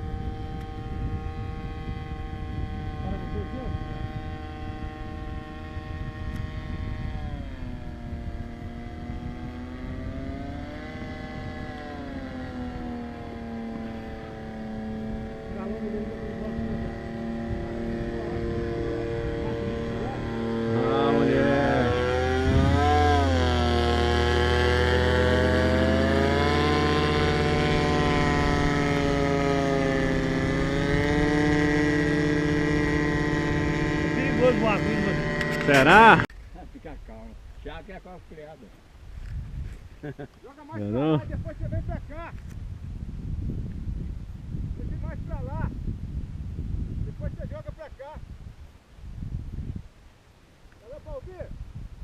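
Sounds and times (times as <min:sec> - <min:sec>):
paramotor engine droning: 0:00.0 - 0:36.3
wind rumble on microphone: 0:00.0 - 0:52.0.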